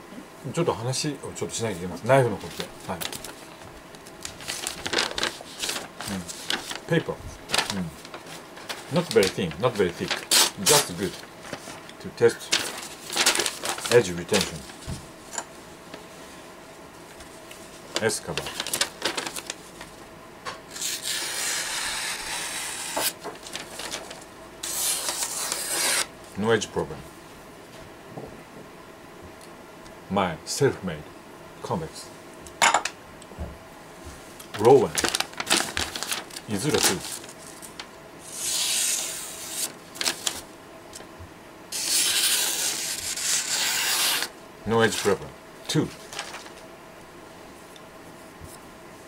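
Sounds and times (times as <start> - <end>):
knife slicing paper: 8.7 - 11.7, 20.7 - 26.1, 35.0 - 40.4, 41.8 - 44.3.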